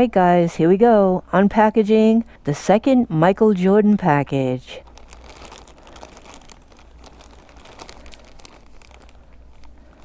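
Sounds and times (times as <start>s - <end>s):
package wrapping tearing and crinkling: 4.8s - 10.0s.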